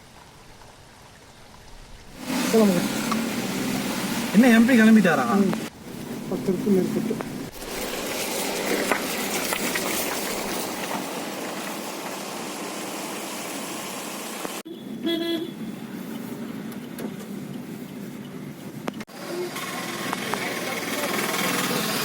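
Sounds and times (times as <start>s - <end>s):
roadside traffic noise: 0.0s - 22.0s
vehicle horn toot: 14.7s - 15.6s.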